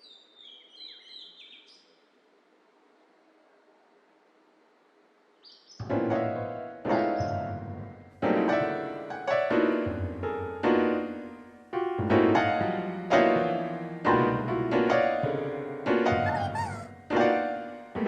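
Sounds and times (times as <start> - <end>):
slow sad piano chords: 5.8 - 18.0.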